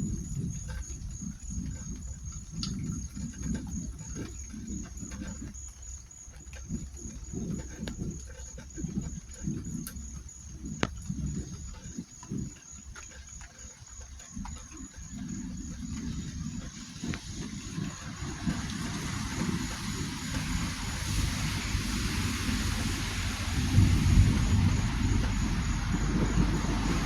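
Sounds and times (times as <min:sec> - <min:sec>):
insect trilling: 0:00.0 - 0:27.0
low rumbling: 0:15.7 - 0:27.0.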